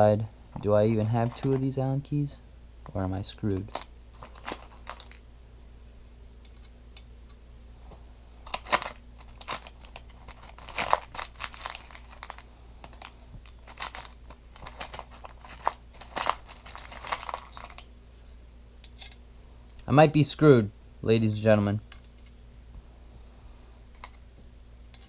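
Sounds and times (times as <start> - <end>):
hands rummaging through tools: 0.5 - 2.0, 3.5 - 5.2, 8.4 - 17.9, 18.8 - 19.2, 23.9 - 24.2.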